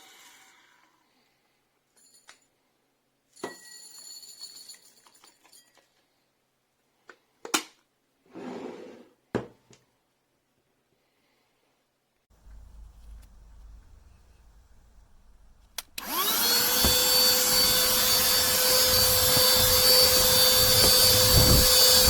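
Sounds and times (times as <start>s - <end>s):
rustling: 12.3s - 22.0s.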